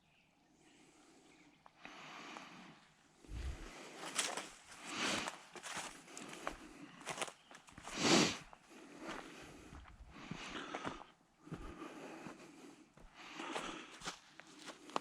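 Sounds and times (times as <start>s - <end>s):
out-of-breath breathing: 0.5s - 15.0s
footsteps on trail: 3.3s - 15.0s.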